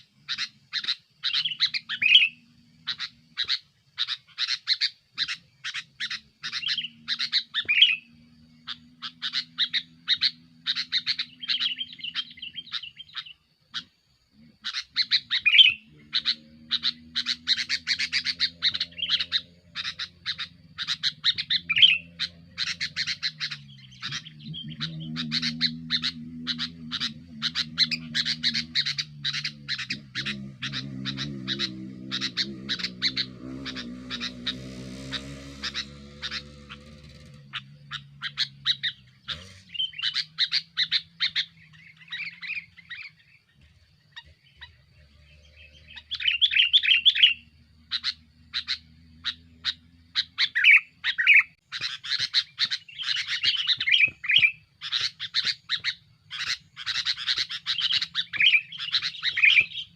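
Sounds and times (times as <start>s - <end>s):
bulbul chirping: 0.0s - 59.9s
faint low hum: 5.6s - 50.4s.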